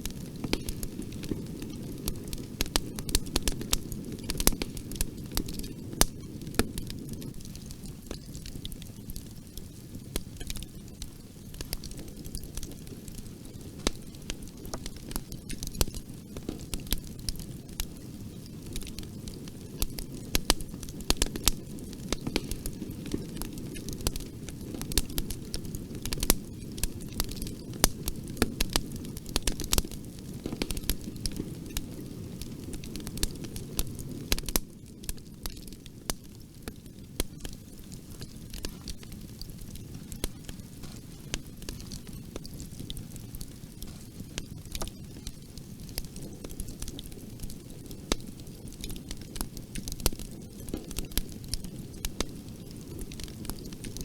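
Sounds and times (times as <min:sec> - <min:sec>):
bonfire flame rumbling: 0:00.0 - 0:54.0
burning wood crackling and popping: 0:00.0 - 0:54.0.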